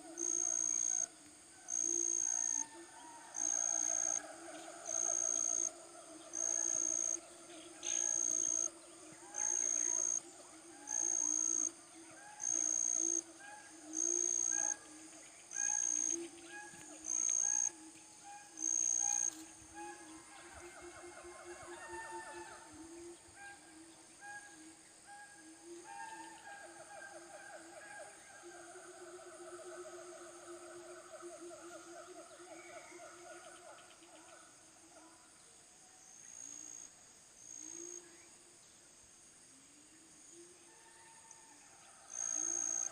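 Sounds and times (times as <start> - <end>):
insects chirring: 0.0 - 42.9
chorus of lower animal calls: 1.7 - 34.1, 40.6 - 42.9.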